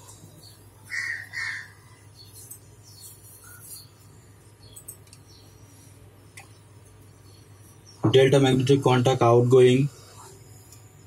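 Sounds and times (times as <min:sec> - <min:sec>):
bird calling: 0:00.4 - 0:04.0.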